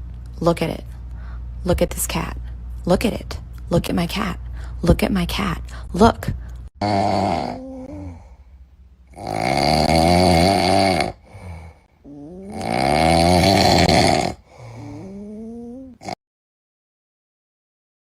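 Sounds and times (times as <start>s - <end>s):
cat snoring: 6.8s - 8.3s, 9.1s - 16.2s
cat breathing quietly: 14.4s - 15.2s.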